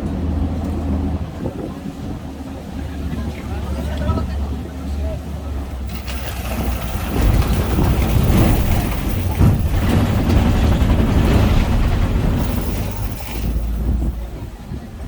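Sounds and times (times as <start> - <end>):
truck engine running: 5.2 - 15.0
vehicle jolting and rattling: 5.8 - 14.6.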